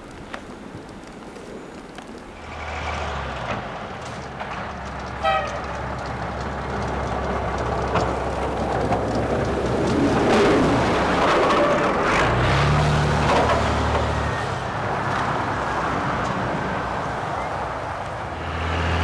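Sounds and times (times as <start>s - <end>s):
heavy vehicle engine rumbling: 2.3s - 19.0s
short horn toot: 5.2s - 5.8s.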